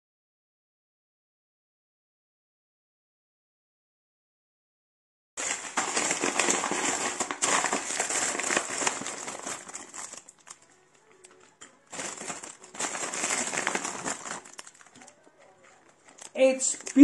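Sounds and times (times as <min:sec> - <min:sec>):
packaging crinkling and rustling: 0:05.4 - 0:17.0.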